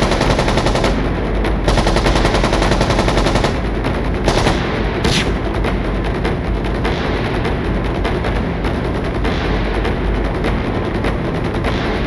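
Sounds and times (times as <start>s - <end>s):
rapid automatic gunfire: 0.0s - 5.7s.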